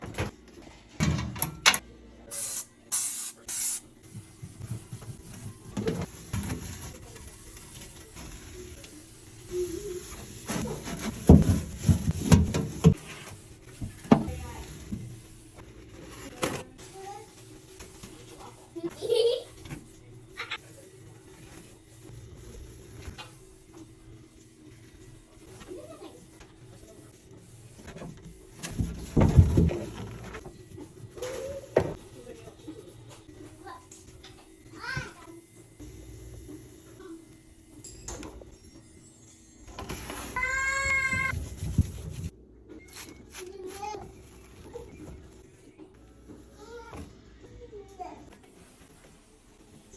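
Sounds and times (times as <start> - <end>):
wiping a microwave: 4.4 - 15.0.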